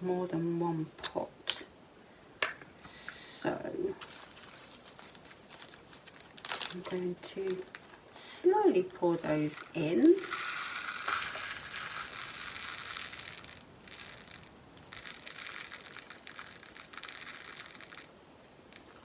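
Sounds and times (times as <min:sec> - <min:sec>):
beads rattling into a plastic pot: 0:04.0 - 0:07.8, 0:09.2 - 0:19.0.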